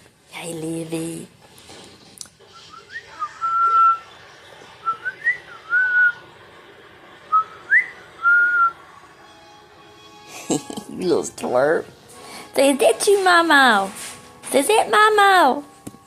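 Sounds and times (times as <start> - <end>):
person whistling: 2.6 - 4.0, 4.8 - 6.2, 7.3 - 8.8.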